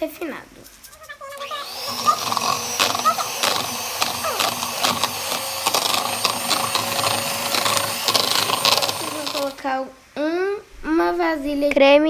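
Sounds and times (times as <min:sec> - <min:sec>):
electric mixer running: 0:01.3 - 0:09.7.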